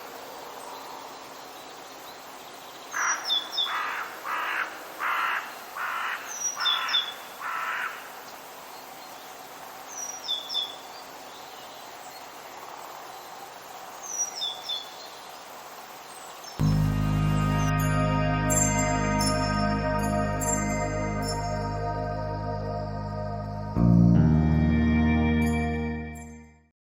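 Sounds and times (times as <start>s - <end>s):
background hiss: 0.0s - 24.4s
songbird chirping: 0.0s - 26.4s
crow cawing: 3.0s - 8.1s.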